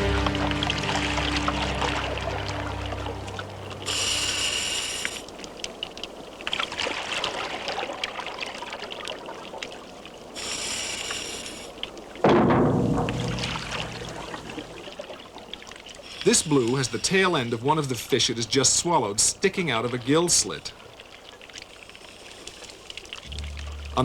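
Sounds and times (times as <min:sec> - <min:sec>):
low music chord: 0:00.0 - 0:04.6, 0:23.3 - 0:24.0
underwater bubbling hiss: 0:02.5 - 0:05.4, 0:10.4 - 0:11.8.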